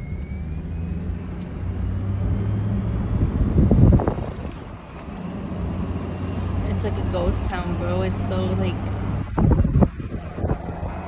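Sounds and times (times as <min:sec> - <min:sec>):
car engine and road hum: 0:00.0 - 0:11.0
wind noise: 0:00.0 - 0:11.0.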